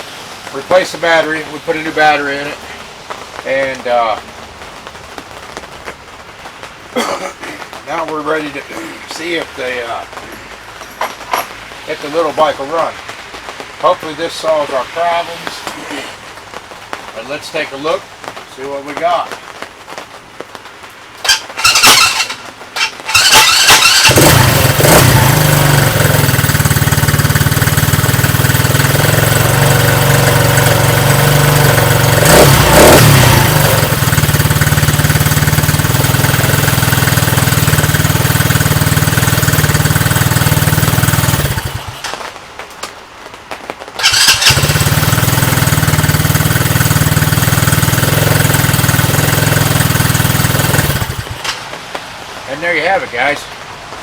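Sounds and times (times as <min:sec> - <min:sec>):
engine cranking: 0:21.2 - 0:42.2, 0:44.0 - 0:51.7
engine revving: 0:21.3 - 0:42.2, 0:44.0 - 0:51.6
small engine running: 0:21.3 - 0:42.2, 0:44.0 - 0:51.6.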